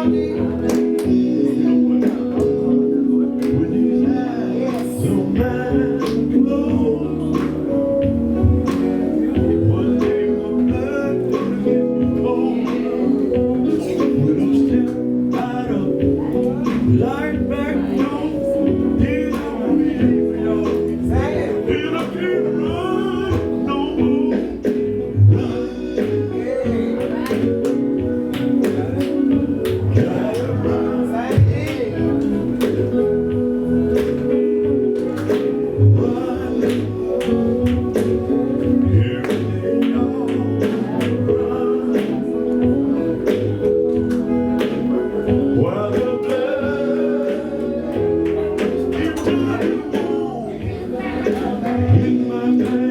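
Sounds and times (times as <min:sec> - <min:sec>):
bass: 0:00.0 - 0:52.9
gospel band music: 0:00.0 - 0:52.9
organ chords: 0:00.0 - 0:52.9
person singing: 0:00.0 - 0:52.9
drums: 0:03.4 - 0:52.9.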